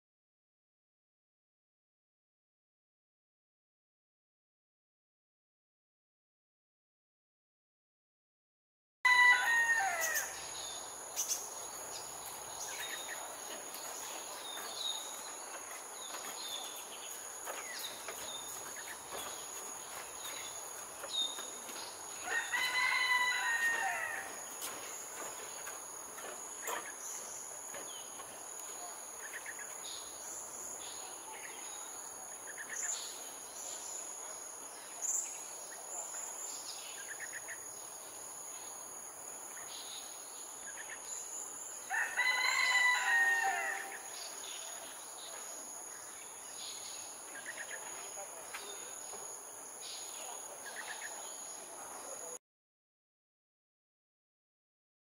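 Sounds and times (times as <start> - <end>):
loud bird call: 9.1 - 10.6, 41.9 - 44.2
high insect whine: 9.1 - 52.4.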